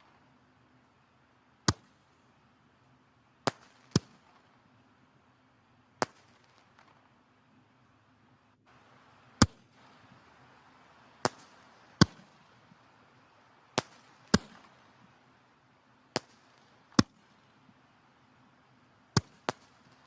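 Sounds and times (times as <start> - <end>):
faint hiss of burning logs: 0.0 - 20.0
sharp pops of fire: 1.6 - 2.4, 3.4 - 4.6, 6.0 - 7.2, 8.7 - 12.9, 13.6 - 15.2, 16.1 - 17.7, 19.1 - 20.0
wood fire crackling: 8.6 - 20.0.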